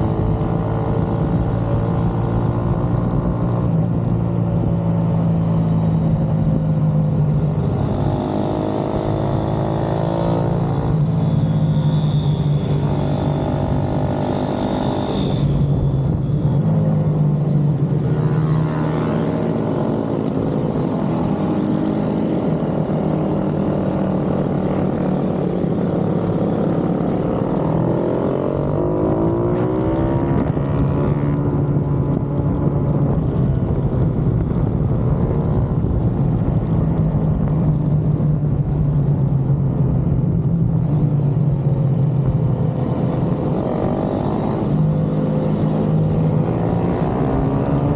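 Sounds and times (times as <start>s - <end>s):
steady low drone: 0.0s - 29.6s
pit bike engines revving: 0.0s - 30.5s, 40.4s - 47.9s.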